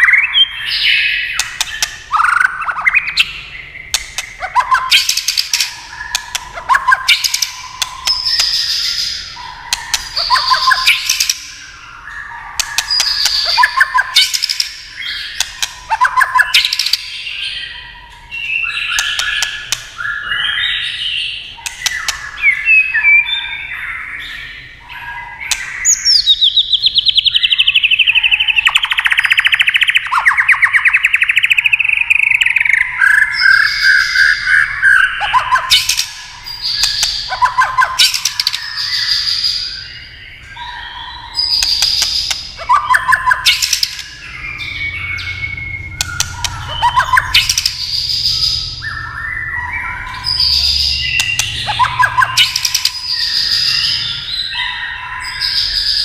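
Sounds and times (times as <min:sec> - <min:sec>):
songbird singing varied phrases: 0:00.0 - 0:56.0
bird clicking calls: 0:01.3 - 0:03.3, 0:03.9 - 0:09.0, 0:09.6 - 0:11.6, 0:12.5 - 0:17.1, 0:18.8 - 0:20.1, 0:21.6 - 0:23.2, 0:25.4 - 0:26.6, 0:27.5 - 0:32.6, 0:35.2 - 0:39.5, 0:41.4 - 0:44.3, 0:45.8 - 0:48.8, 0:50.2 - 0:53.8.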